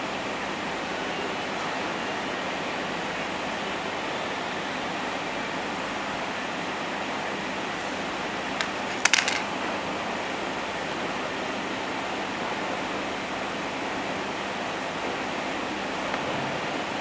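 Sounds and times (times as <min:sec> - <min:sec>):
small hard object clicking and clinking: 0:08.6 - 0:09.5.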